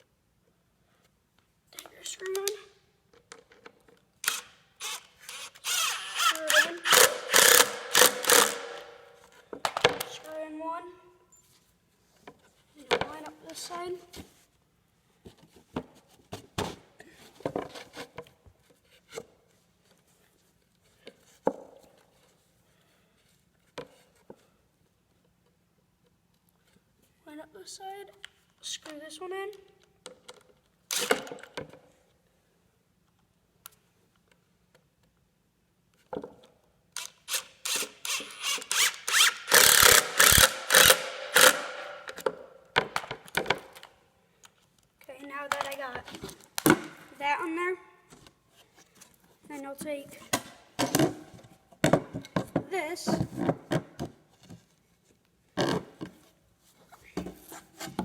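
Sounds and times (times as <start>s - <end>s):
screw driven into wood: 4.2s - 9.1s, 30.9s - 31.4s, 37.0s - 43.0s.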